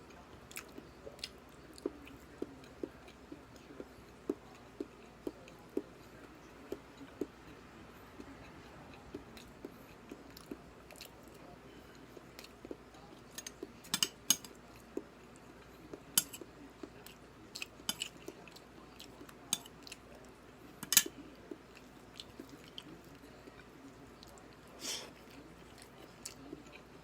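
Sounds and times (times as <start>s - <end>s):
cutlery clinking: 13.4s - 14.5s, 16.2s - 16.4s, 20.8s - 21.2s.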